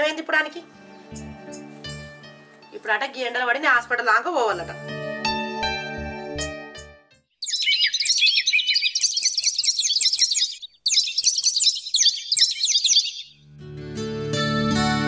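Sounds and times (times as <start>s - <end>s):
small birds twittering: 7.4s - 13.4s.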